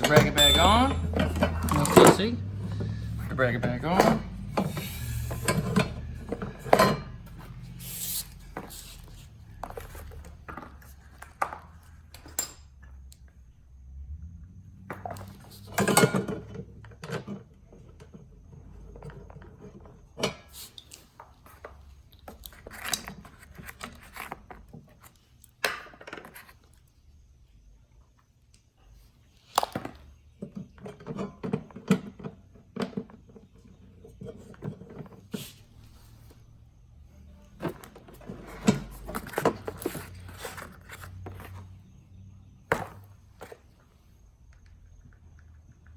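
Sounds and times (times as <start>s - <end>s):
metal tools clinking: 0.0s - 7.6s.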